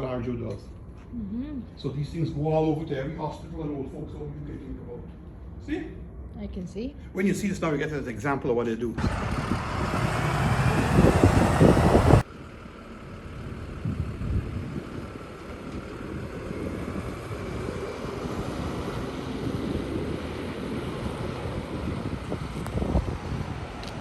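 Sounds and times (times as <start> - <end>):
wind on microphone: 9.0 - 12.2, 16.1 - 24.0
moving vehicle rushing noise: 9.0 - 12.3.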